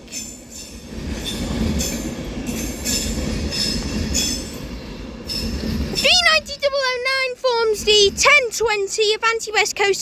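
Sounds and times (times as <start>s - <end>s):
wheels squealing on rails: 0.0s - 6.7s
train rail rumble: 0.0s - 10.0s.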